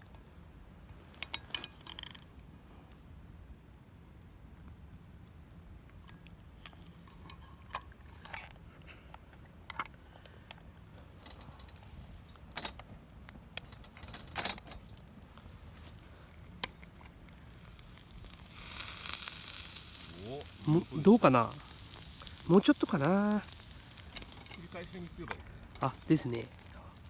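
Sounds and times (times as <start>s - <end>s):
light clicks and clinks: 6.1s - 15.9s, 16.6s - 27.0s.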